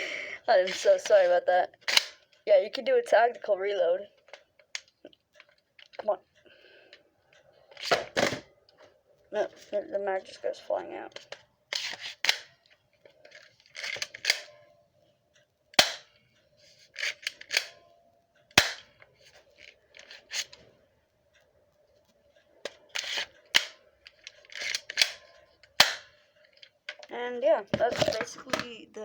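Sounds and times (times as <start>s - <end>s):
pistol slide scraping rattle: 11.7s - 12.5s, 13.2s - 14.5s, 15.8s - 17.8s, 18.6s - 20.6s, 22.7s - 26.1s
pistol sharp click: 25.8s - 26.1s.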